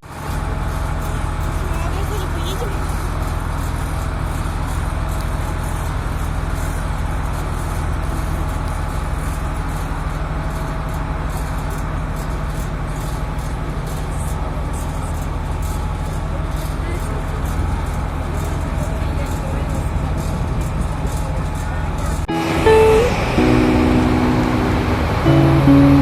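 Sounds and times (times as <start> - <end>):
boat diesel engine droning: 22.3 - 26.0.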